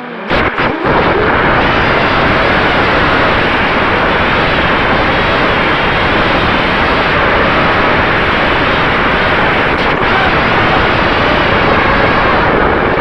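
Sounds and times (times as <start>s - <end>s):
drone propellers spinning: 0.3s - 13.0s
wind noise: 0.3s - 13.0s.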